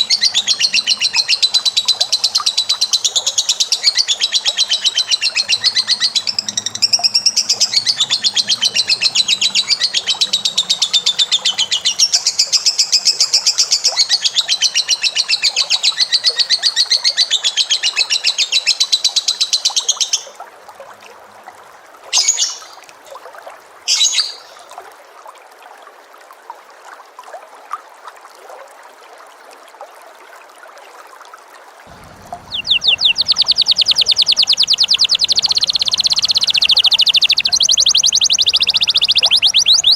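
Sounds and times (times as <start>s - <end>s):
bird chattering trill: 0.0s - 12.6s, 31.9s - 39.9s
bird chirps: 0.0s - 13.1s, 31.9s - 39.9s.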